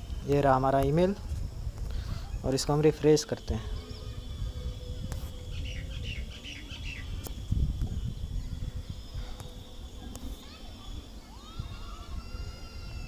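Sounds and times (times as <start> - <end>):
bird chirps: 3.4 - 11.6.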